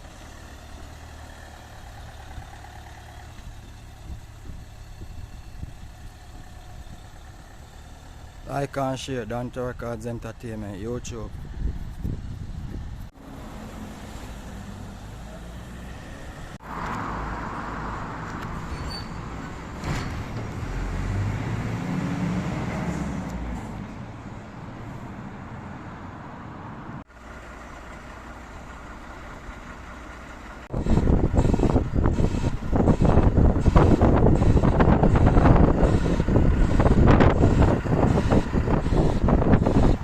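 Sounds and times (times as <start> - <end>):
vehicle engine passing: 11.5 - 28.0.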